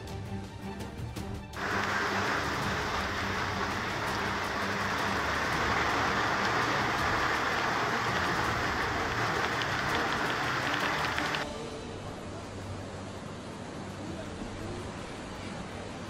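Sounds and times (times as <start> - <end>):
heavy rain hissing: 1.6 - 16.0.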